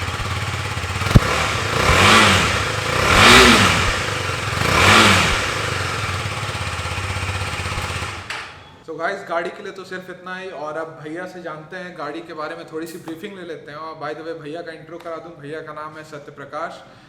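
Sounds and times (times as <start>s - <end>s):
motorcycle engine revving: 0.0s - 8.7s
sharp click: 1.1s - 2.2s.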